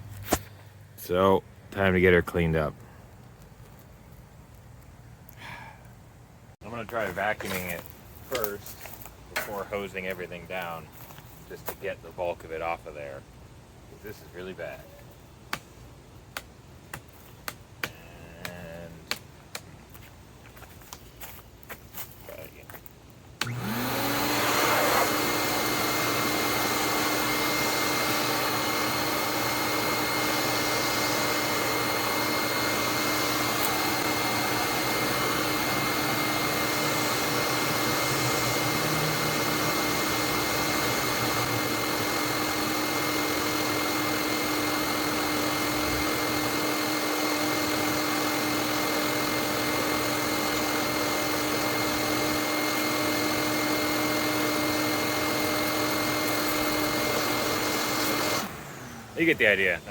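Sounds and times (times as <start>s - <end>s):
vacuum cleaner running: 23.4s - 59.9s.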